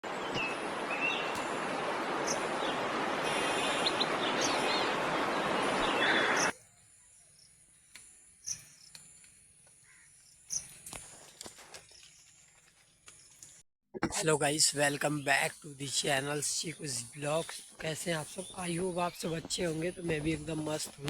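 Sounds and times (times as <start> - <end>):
bird chirps: 0.1 - 1.6, 2.2 - 9.3, 14.6 - 21.0
rushing storm noise: 0.1 - 6.5.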